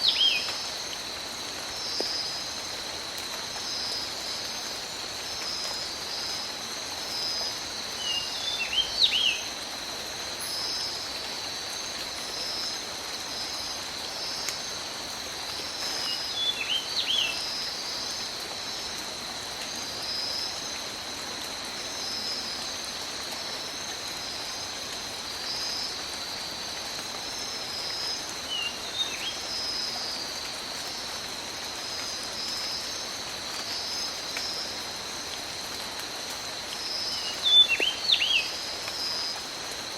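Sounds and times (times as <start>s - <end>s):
tropical rain falling: 0.0s - 39.9s.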